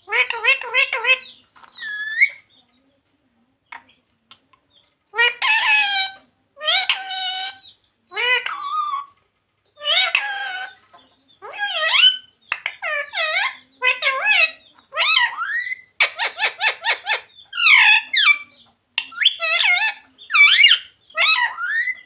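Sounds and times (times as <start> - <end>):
parrot harsh calls: 0.1 - 2.4, 5.2 - 9.1, 9.8 - 10.8, 11.4 - 18.4, 19.1 - 22.0.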